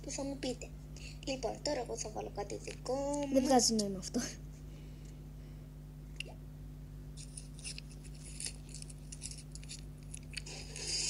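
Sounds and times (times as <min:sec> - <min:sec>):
low electrical hum: 0:00.0 - 0:11.0
small objects clicking and rattling: 0:07.2 - 0:10.5.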